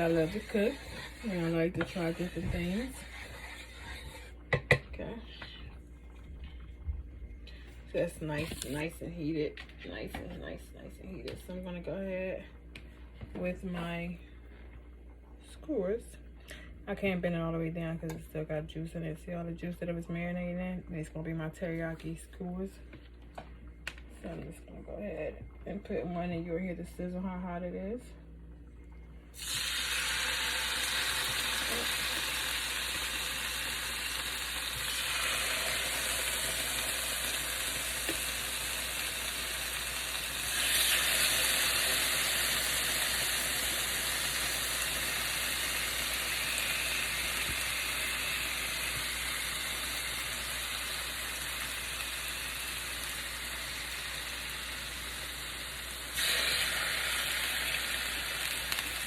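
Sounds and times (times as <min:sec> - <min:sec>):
chicken sizzling in a skillet: 0:00.0 - 0:04.7, 0:29.4 - 0:59.0.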